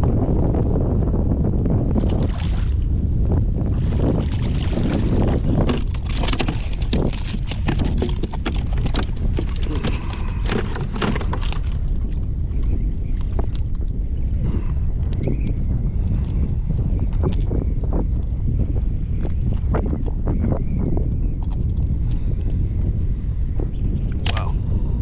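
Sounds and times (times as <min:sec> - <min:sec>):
wind buffeting microphone: 0:00.0 - 0:25.0
scattered clicks and knocks: 0:05.6 - 0:11.6.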